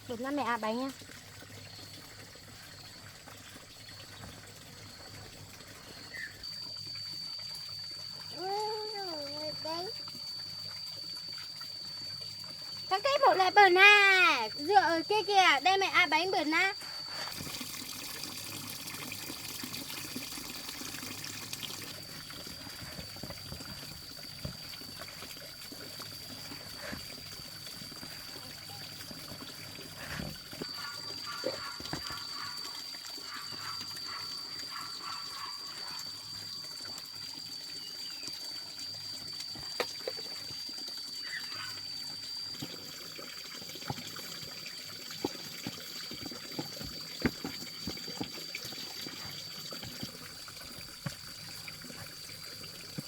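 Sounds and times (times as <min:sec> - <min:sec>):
water running and trickling: 0:00.0 - 0:53.0
thin high-pitched tone: 0:05.9 - 0:11.7.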